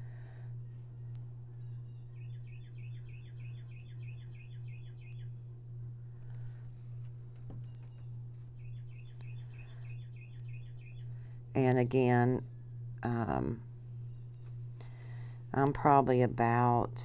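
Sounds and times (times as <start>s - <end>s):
low hum: 0.0s - 17.0s
bird chirping rapidly: 1.9s - 5.3s.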